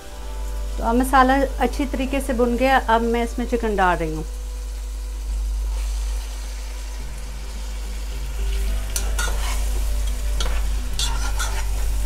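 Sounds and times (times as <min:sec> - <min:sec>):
chicken sizzling in oil: 0:00.0 - 0:12.0
spoon scraping a pan: 0:09.0 - 0:09.8, 0:10.4 - 0:11.9.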